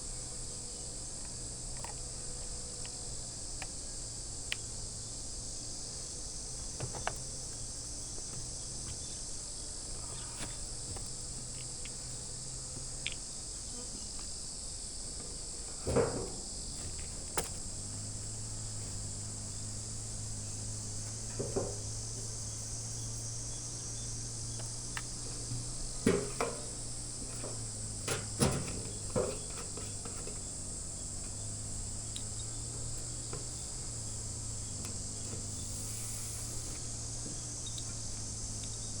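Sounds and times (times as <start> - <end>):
insects chirring: 0.0 - 39.0
wood knocking and thumping: 21.2 - 22.2.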